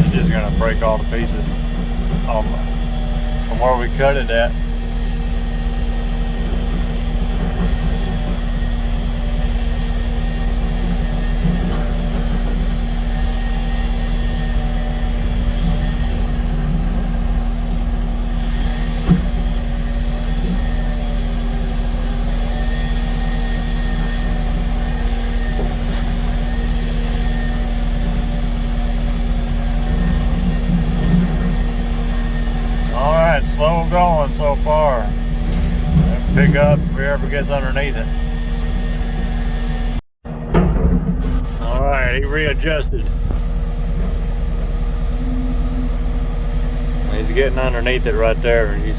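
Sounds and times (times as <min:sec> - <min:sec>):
diesel engine running steadily: 0:00.0 - 0:48.9
faint whine: 0:00.0 - 0:48.9.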